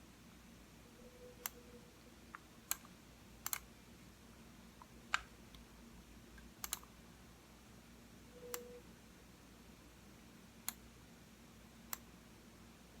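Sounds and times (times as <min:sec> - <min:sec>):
computer mouse clicking: 0:01.4 - 0:01.6, 0:02.3 - 0:03.7, 0:06.6 - 0:06.9, 0:10.6 - 0:10.8, 0:11.9 - 0:12.1.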